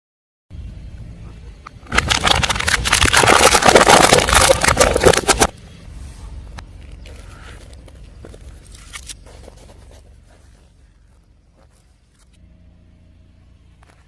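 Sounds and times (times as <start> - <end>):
tyre crushing crunchy objects: 1.9 - 5.6.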